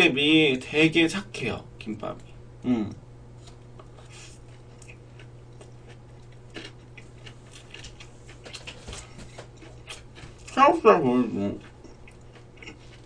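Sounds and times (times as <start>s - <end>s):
steady low hum: 0.0s - 13.0s
wet chewing clicks and smacks: 4.5s - 10.6s, 11.6s - 13.0s.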